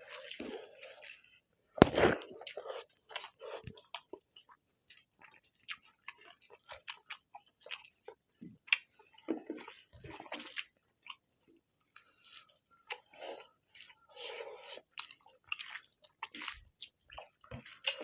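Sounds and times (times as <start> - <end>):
wet chewing and lip smacks: 14.7 - 18.0.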